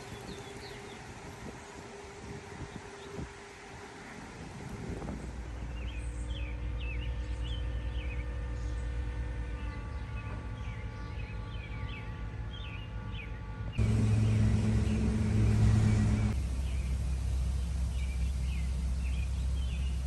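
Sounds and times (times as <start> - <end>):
low hum: 13.6 - 20.0.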